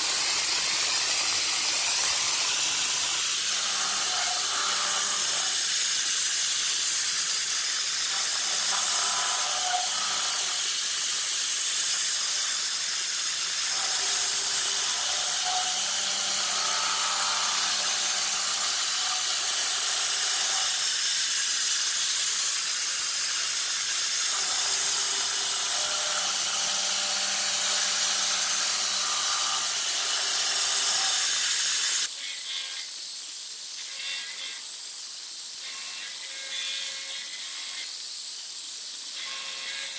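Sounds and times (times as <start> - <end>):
loud spray hiss: 0.0 - 14.9
milling spindle and cutter tones: 0.0 - 32.9.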